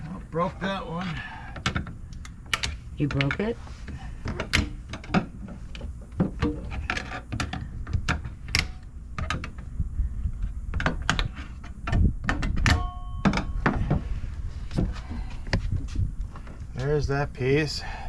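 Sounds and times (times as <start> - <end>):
brief ringing tone: 12.8 - 13.7.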